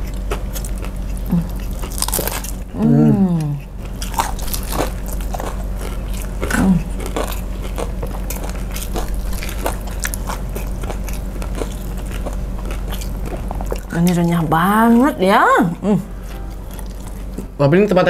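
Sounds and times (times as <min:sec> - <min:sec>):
crunchy chewing: 0:00.0 - 0:15.1, 0:15.7 - 0:18.0
low electrical hum: 0:00.0 - 0:18.0
voiced murmur: 0:02.7 - 0:03.8.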